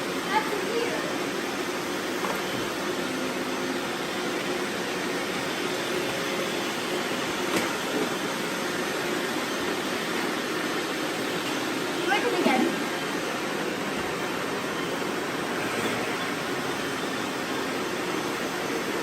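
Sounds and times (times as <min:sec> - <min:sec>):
robot vacuums whirring: 0:00.0 - 0:19.0.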